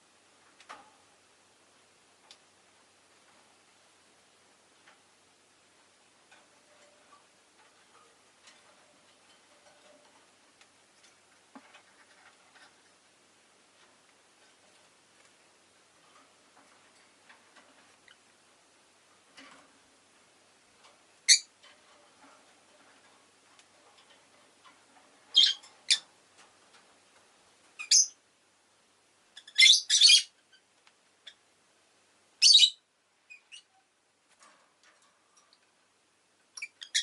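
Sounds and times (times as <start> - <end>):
bird high-pitched chirps: 21.3 - 21.5, 25.3 - 26.0, 27.8 - 28.2, 29.4 - 30.4, 32.4 - 33.7, 36.6 - 37.0.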